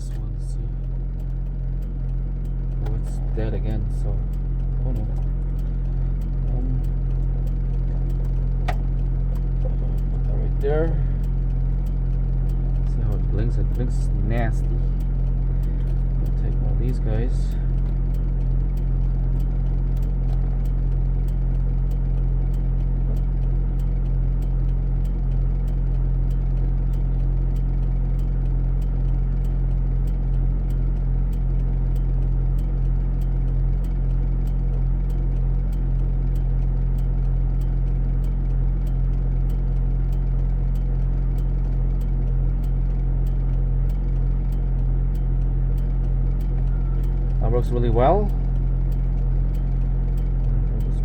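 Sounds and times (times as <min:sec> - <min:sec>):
vehicle engine idling: 0:00.0 - 0:51.0
faint regular ticks: 0:00.1 - 0:51.0.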